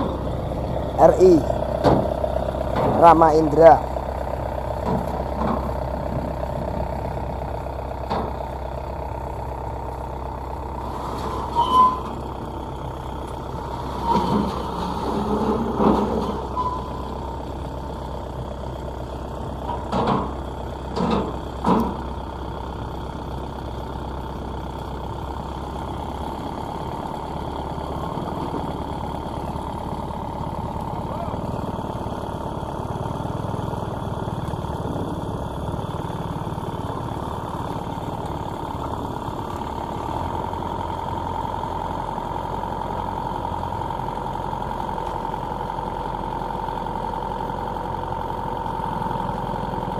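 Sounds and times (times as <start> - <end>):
combine harvester engines droning: 0.0 - 49.9.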